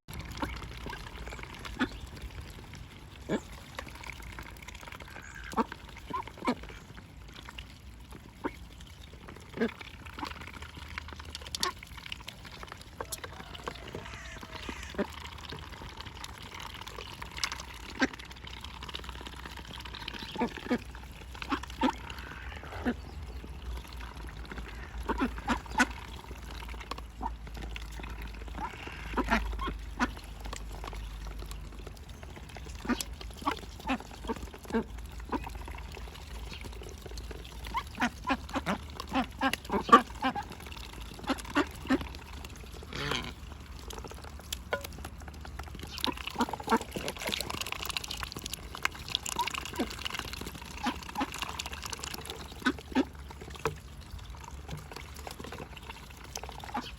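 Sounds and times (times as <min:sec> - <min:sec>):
ducks quacking: 0:00.2 - 0:02.3, 0:05.0 - 0:06.9, 0:13.0 - 0:15.9, 0:17.5 - 0:18.2, 0:20.0 - 0:26.4, 0:28.0 - 0:30.8, 0:32.6 - 0:35.8, 0:37.6 - 0:43.4, 0:45.9 - 0:47.8, 0:49.3 - 0:51.8, 0:52.4 - 0:53.3, 0:56.6 - 0:56.9.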